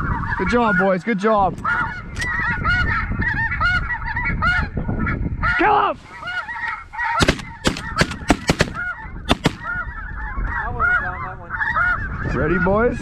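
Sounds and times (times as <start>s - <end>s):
geese honking: 5.4s - 9.9s
shotgun shots: 7.2s - 9.8s.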